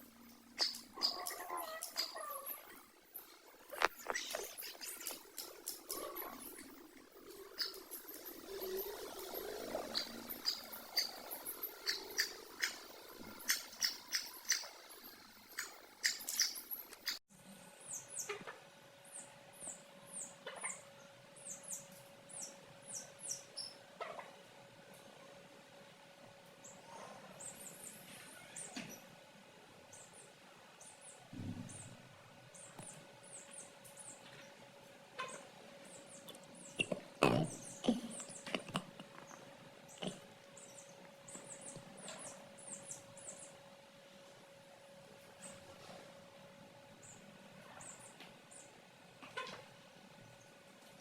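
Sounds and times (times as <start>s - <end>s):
chicks peeping: 9.8s - 14.8s.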